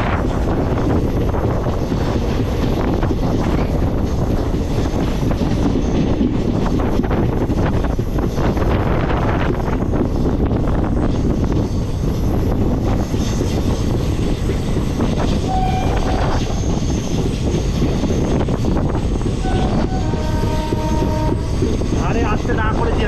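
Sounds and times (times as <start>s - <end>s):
rushing air: 0.0s - 23.0s
train wheels rumbling on track: 0.0s - 23.0s
train horn: 15.4s - 16.4s, 19.4s - 21.8s.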